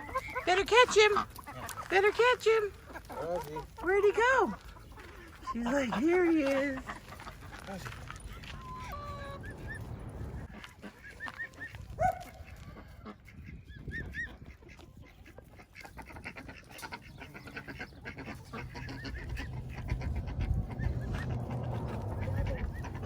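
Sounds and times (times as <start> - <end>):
low rumble: 8.0 - 10.6, 18.6 - 23.0
bird chirping: 15.8 - 23.0
lower bird call: 18.6 - 23.0.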